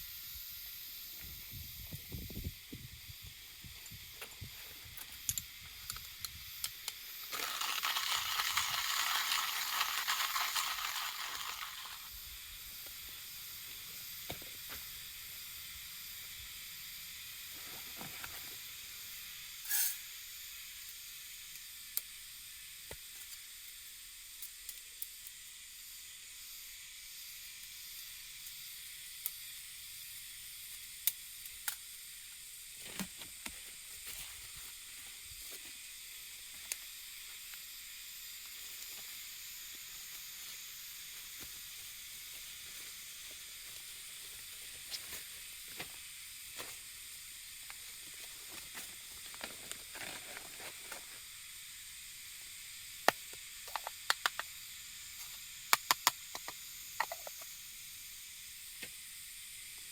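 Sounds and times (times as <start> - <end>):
food sizzling in a hot pan: 0.0 - 32.9, 33.6 - 59.9
small pops: 53.0 - 54.6, 55.7 - 57.5.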